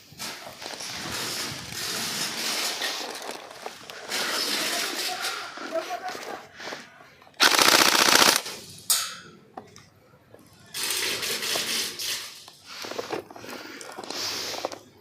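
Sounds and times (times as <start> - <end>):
airsoft rifle full-auto burst: 7.4 - 8.6.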